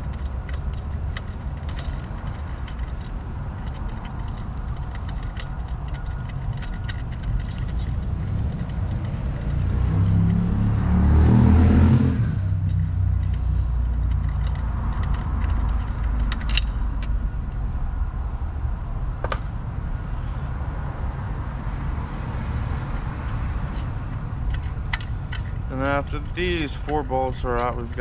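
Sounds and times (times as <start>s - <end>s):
wrench clinking on metal: 0.0s - 10.5s, 12.4s - 17.2s, 23.3s - 28.0s
engine drone: 0.0s - 28.0s.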